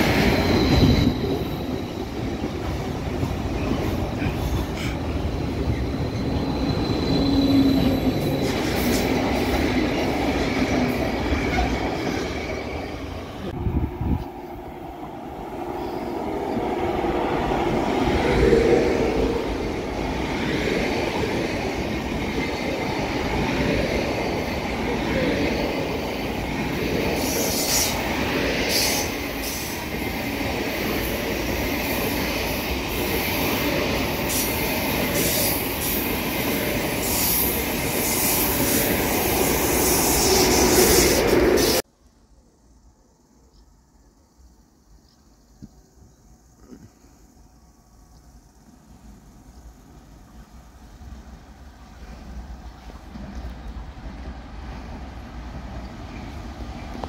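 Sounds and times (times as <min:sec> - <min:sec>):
high-pitched wheel squeals: 0:00.0 - 0:02.2, 0:05.2 - 0:08.6
train rushing rail noise: 0:00.0 - 0:57.0.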